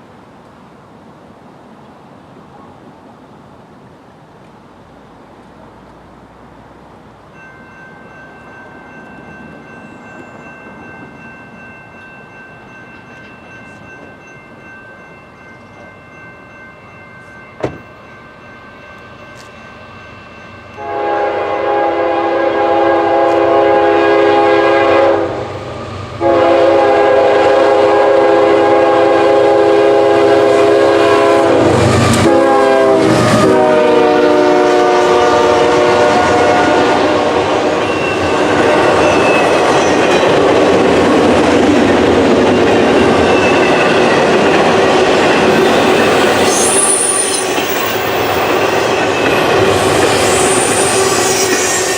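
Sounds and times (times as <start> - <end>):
train rumble and wheel clatter: 0.0 - 51.9
locomotive air horn: 20.8 - 25.5, 26.2 - 38.9, 49.7 - 51.9.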